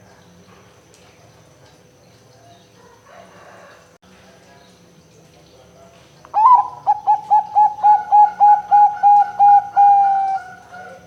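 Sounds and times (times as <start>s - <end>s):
dove cooing: 6.4s - 11.0s.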